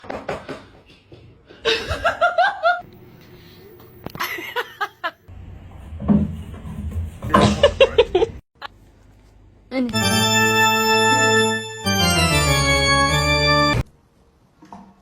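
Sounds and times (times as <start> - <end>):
person laughing: 4.1 - 5.2, 7.4 - 8.8.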